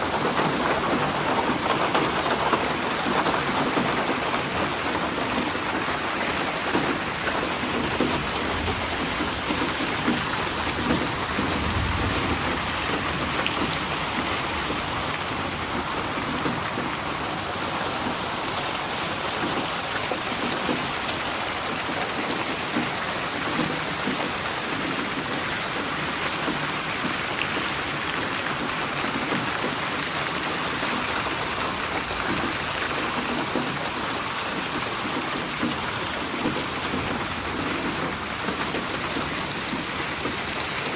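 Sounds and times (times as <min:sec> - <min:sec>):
heavy rain falling: 0:00.0 - 0:40.9
distant thunder rumble: 0:07.7 - 0:17.3.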